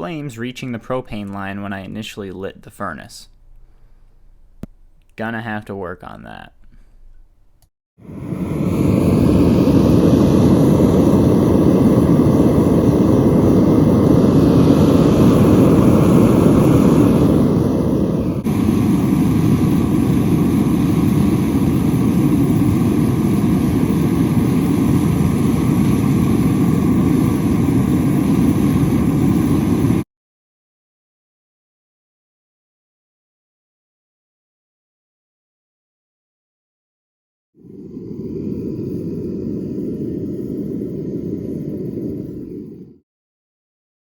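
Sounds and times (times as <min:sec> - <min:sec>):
gas burner roaring: 0:08.0 - 0:30.0, 0:37.6 - 0:43.0.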